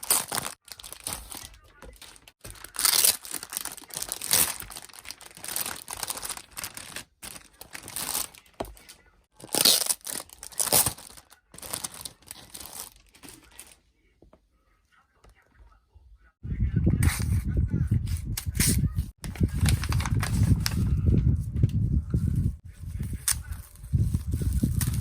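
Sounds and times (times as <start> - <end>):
packaging crinkling and tearing: 0.0 - 13.8, 19.2 - 20.9.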